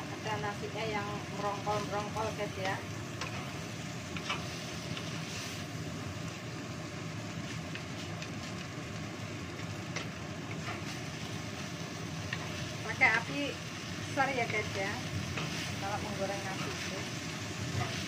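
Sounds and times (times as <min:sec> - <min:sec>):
rice sizzling in a pan: 0:00.0 - 0:18.0.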